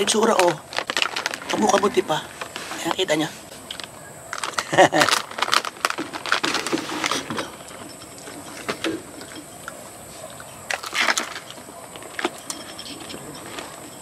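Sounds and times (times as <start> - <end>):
crunching and chewing crispy food: 0.0 - 3.0, 3.6 - 14.0.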